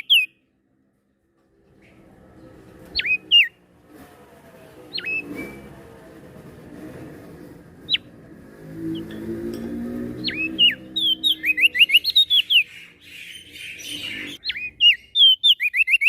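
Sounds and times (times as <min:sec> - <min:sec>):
songbird whistling: 0:00.0 - 0:00.4, 0:03.0 - 0:03.6, 0:04.9 - 0:05.7, 0:10.2 - 0:16.0.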